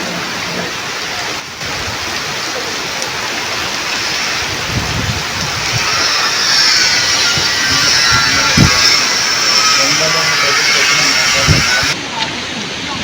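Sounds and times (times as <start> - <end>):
heavy rain pouring: 0.0 - 12.1
wind buffeting microphone: 3.2 - 12.0.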